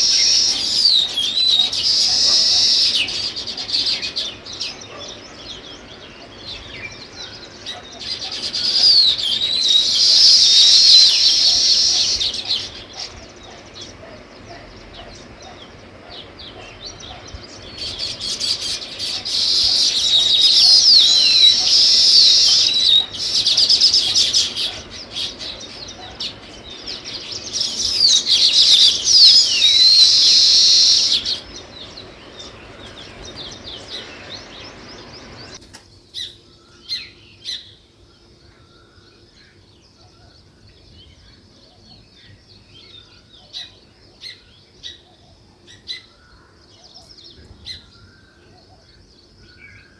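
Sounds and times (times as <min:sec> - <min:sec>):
background hiss: 0:00.0 - 0:38.4
small songbirds chirping: 0:00.0 - 0:49.9.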